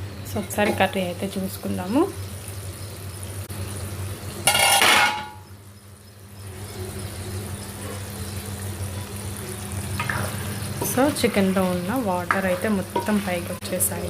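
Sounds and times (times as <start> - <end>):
curry sizzling in a pot: 0.0 - 14.0
pot lid clattering: 4.5 - 5.4.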